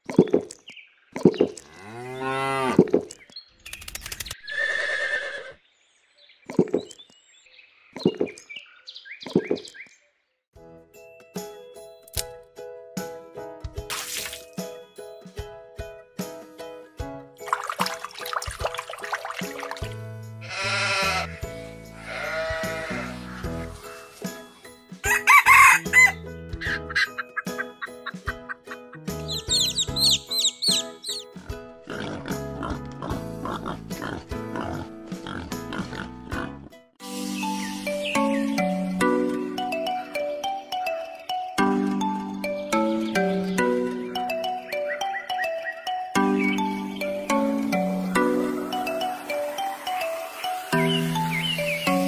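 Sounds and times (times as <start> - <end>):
cow mooing: 1.7 - 2.8, 20.4 - 21.3, 22.0 - 23.3
drawn-out animal calls: 20.4 - 23.5
rooster crowing: 25.0 - 26.2.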